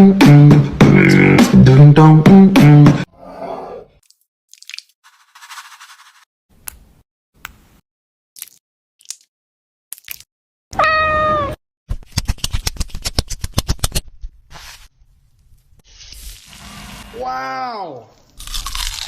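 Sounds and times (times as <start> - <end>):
cat meowing: 10.7 - 11.6.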